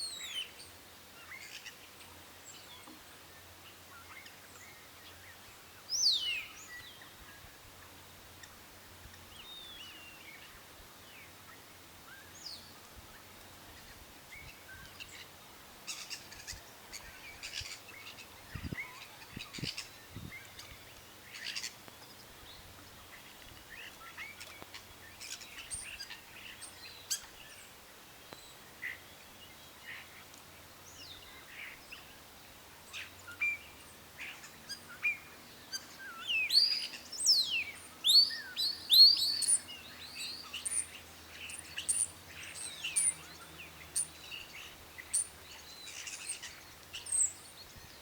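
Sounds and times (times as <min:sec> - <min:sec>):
faint steady hiss: 0:00.0 - 0:48.0
birds chirping and calling: 0:34.2 - 0:48.0.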